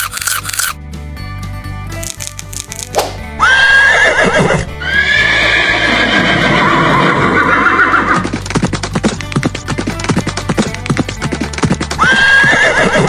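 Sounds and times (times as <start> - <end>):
background music: 0.0 - 13.0
hoofbeats clip-clopping: 0.0 - 13.0
horse whinnying: 3.4 - 13.0.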